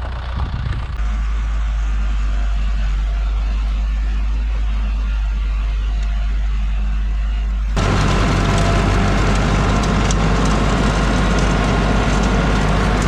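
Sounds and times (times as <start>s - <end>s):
tractor engine rumbling: 0.0s - 1.5s, 7.8s - 13.0s.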